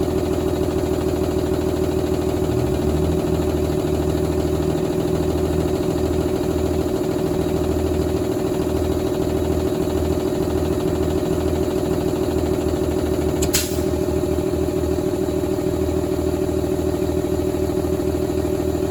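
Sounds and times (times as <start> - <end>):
diesel engine idling: 0.0 - 18.9
brief sharp noise: 13.4 - 13.9.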